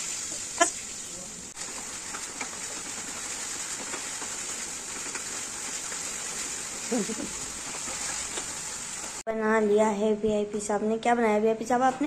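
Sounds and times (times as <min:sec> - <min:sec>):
food sizzling in a pan: 0:00.0 - 0:09.3
wooden spatula scraping: 0:01.6 - 0:09.2.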